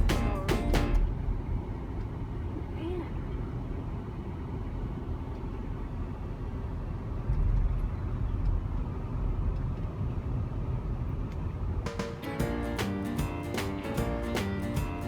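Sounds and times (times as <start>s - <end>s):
car road and wind noise: 0.0s - 12.0s.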